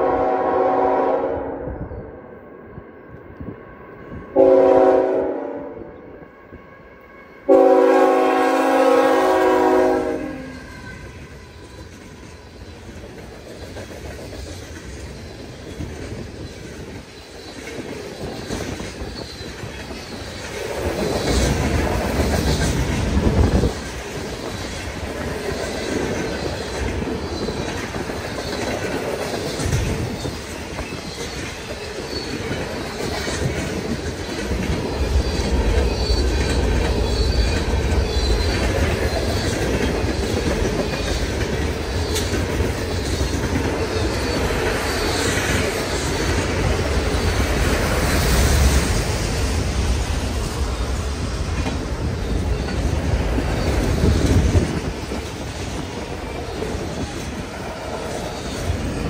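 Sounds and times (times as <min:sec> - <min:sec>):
locomotive horn blasts: 0:00.0 - 0:01.7, 0:04.4 - 0:05.9, 0:07.5 - 0:10.8
train rumbling past: 0:00.0 - 0:59.0.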